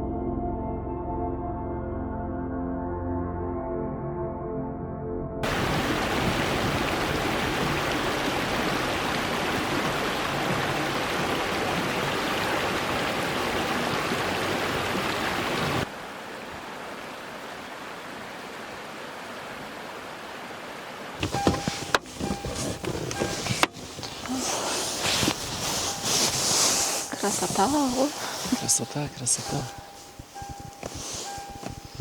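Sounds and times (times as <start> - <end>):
strong wind blowing: 5.4 - 15.8
wind gusts on microphone: 5.4 - 15.8.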